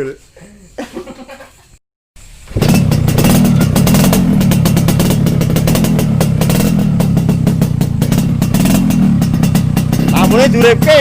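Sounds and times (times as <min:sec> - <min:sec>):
motorcycle engine idling: 0:02.5 - 0:11.0.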